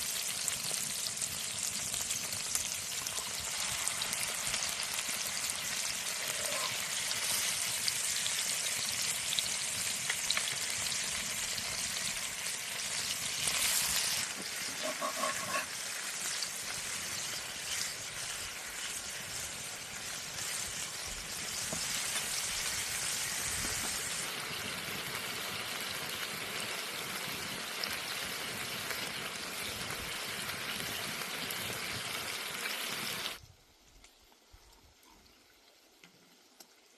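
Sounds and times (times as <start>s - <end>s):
food sizzling in a pan: 0.0s - 33.4s
small crackles: 32.6s - 36.9s.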